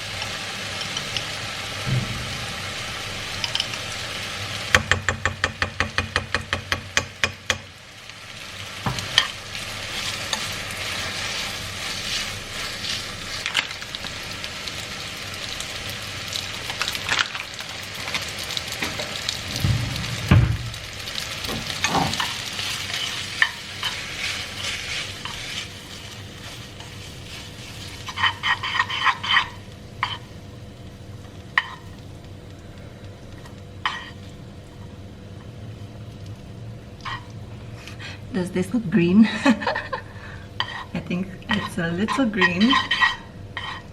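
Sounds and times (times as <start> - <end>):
food sizzling in a frying pan: 0.0 - 43.9
utensil scraping a pan: 21.8 - 30.2, 40.6 - 43.9.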